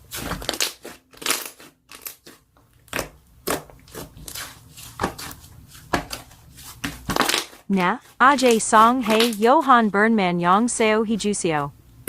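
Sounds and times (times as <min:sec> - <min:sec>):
slime squeezed crunching and popping: 0:00.2 - 0:04.4.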